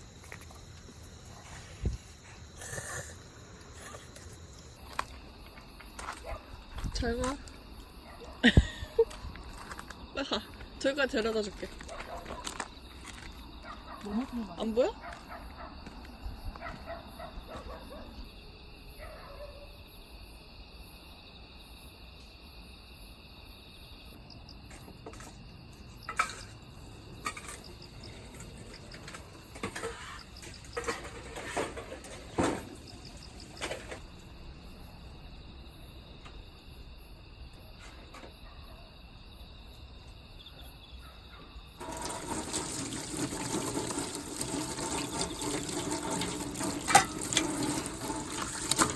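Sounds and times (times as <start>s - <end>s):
water running from a tap: 41.8s - 48.9s.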